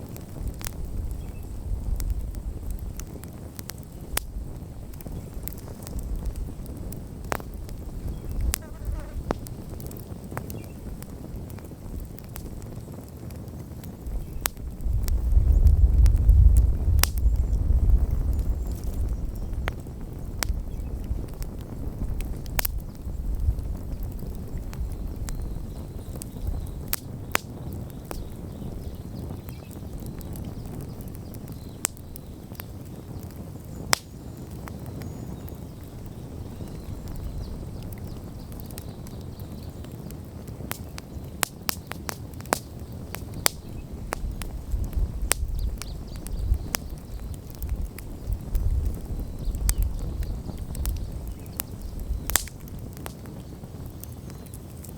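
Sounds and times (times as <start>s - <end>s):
campfire crackling and popping: 0.0s - 54.9s.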